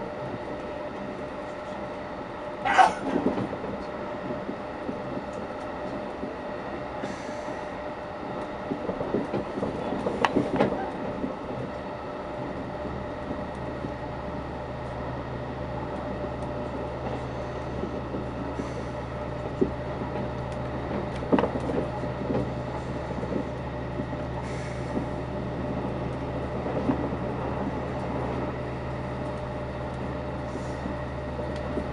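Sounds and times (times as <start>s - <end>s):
train wheels rumbling and rattling: 0.0s - 31.9s.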